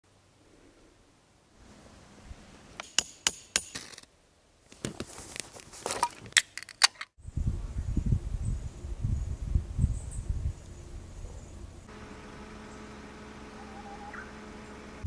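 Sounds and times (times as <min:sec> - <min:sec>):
steady low rumble: 0:07.2 - 0:15.0.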